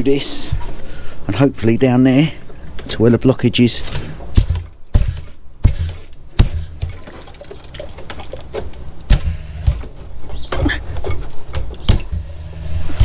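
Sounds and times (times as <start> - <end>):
low steady hum: 4.0 - 13.0
water splashing in pipe: 4.0 - 13.0
sharp knocks: 4.3 - 7.3, 9.1 - 13.0.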